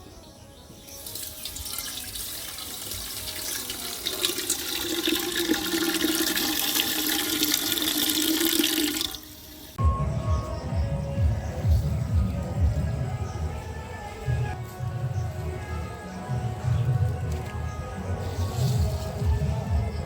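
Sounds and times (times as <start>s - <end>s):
water running and splashing: 1.0s - 9.8s.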